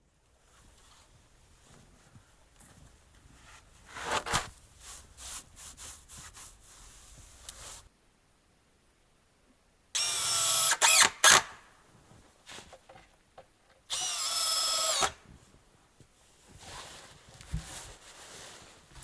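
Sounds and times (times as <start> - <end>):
electric drill whining: 10.0 - 11.5, 13.9 - 15.2.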